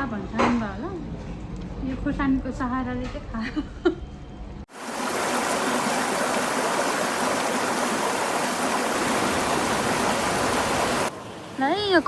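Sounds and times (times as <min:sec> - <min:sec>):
river water rushing: 0:04.7 - 0:11.5.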